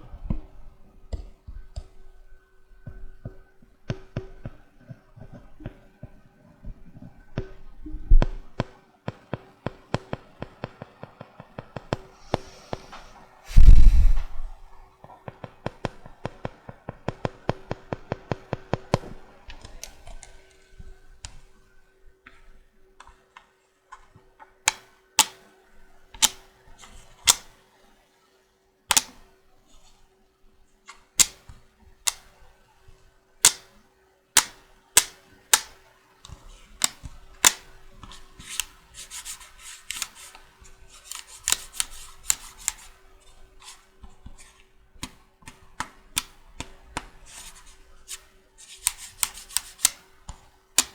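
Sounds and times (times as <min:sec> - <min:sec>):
checkers pieces clicking: 0:28.9 - 0:29.1, 0:38.4 - 0:40.4, 0:41.0 - 0:42.9, 0:47.3 - 0:50.0.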